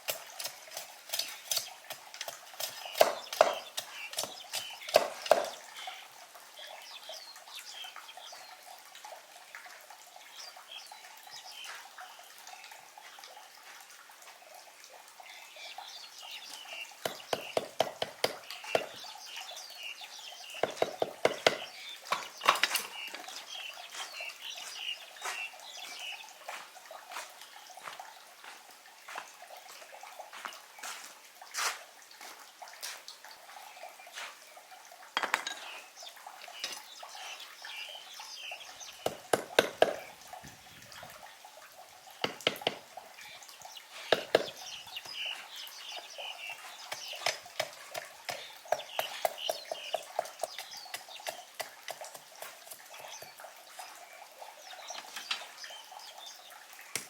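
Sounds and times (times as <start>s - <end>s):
small birds chirping: 0.0s - 8.9s, 9.8s - 31.2s, 32.2s - 41.5s, 42.1s - 57.0s
objects clicking and knocking: 20.6s - 23.3s, 35.2s - 35.8s.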